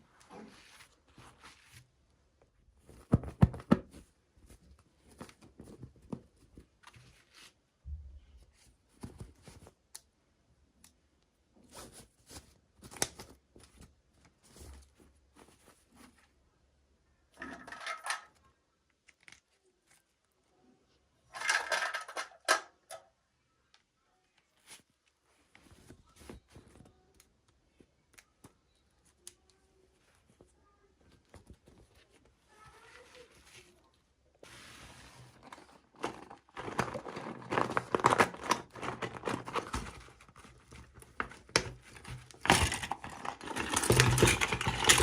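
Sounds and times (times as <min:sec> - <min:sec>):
packaging crinkling and tearing: 0:35.6 - 0:45.0.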